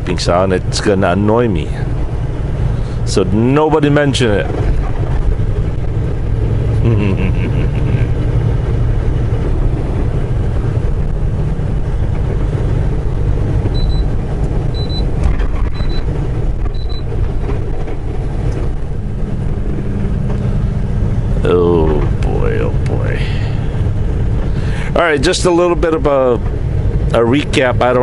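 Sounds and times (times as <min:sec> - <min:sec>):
truck engine and road rumble: 0:00.0 - 0:28.0
short high-pitched beeps: 0:13.8 - 0:14.1, 0:14.7 - 0:15.1, 0:16.7 - 0:17.0.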